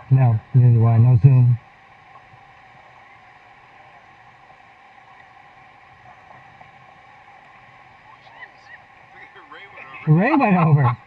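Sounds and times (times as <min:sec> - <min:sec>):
river water rushing through rapids: 0:07.0 - 0:11.0.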